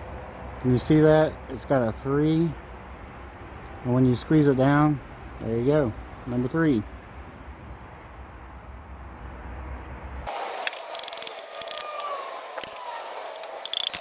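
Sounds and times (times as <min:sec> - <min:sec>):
metallic clicking and rattling of tools: 0:10.6 - 0:14.0.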